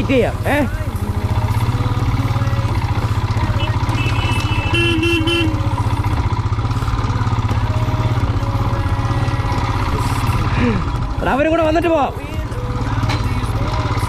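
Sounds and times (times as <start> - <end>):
motorcycle engine idling: 0.0 - 14.0
vehicle horn tooting: 3.4 - 5.8.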